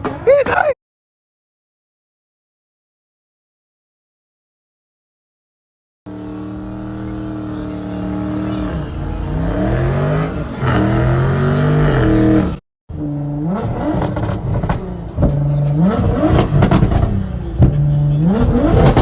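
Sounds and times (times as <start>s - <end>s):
car engine revving: 6.1s - 19.0s.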